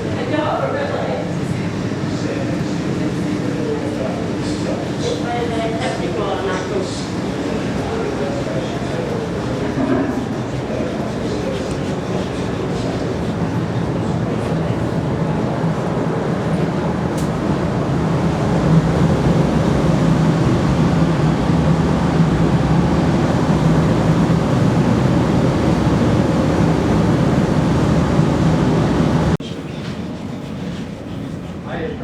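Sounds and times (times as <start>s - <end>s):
loud mechanical hum: 0.0s - 32.0s.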